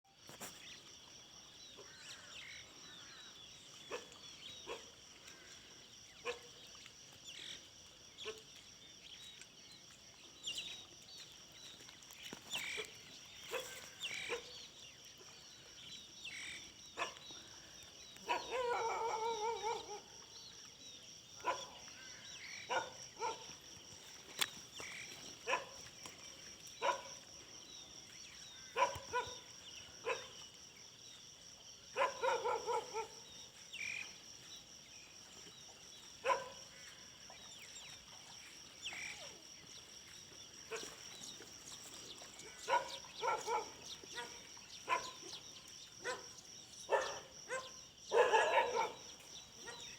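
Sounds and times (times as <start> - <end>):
dogs barking: 6.2 - 6.5, 13.5 - 14.5, 17.0 - 17.3, 18.2 - 20.2, 21.4 - 21.9, 22.6 - 23.6, 25.4 - 25.9, 26.8 - 27.2, 28.7 - 30.4, 31.9 - 33.3, 36.2 - 36.7, 40.7 - 41.0, 42.6 - 45.4, 46.0 - 49.9.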